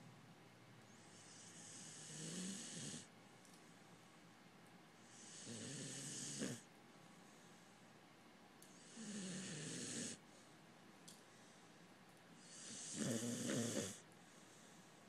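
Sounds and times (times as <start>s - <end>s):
dog snoring: 1.0s - 3.1s, 5.0s - 6.7s, 8.6s - 10.2s, 12.4s - 14.0s.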